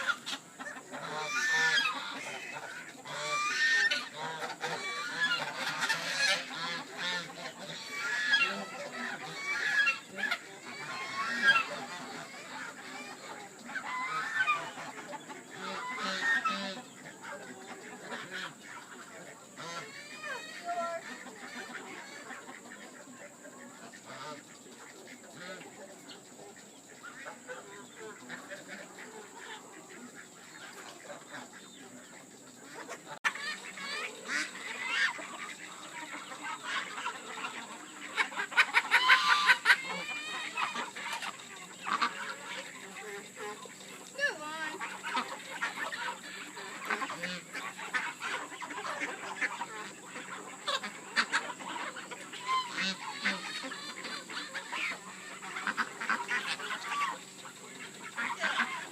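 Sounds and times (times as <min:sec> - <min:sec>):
chickens clucking: 0:00.0 - 0:58.9
geese honking: 0:00.0 - 0:58.9.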